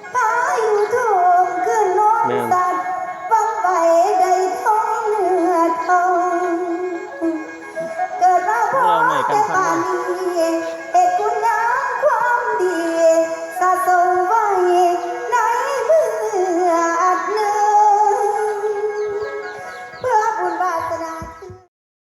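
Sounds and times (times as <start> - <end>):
high voice singing over music: 0.0 - 21.6.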